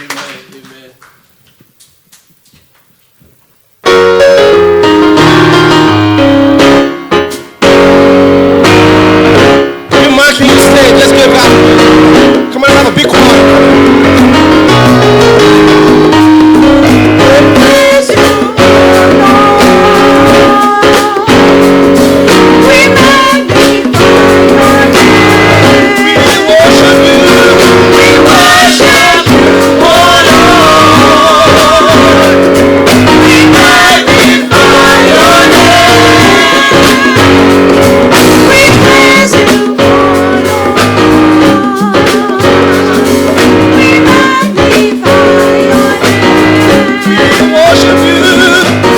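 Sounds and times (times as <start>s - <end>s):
gospel band playing: 0.0s - 2.4s, 3.5s - 48.9s
voices singing: 16.9s - 48.9s.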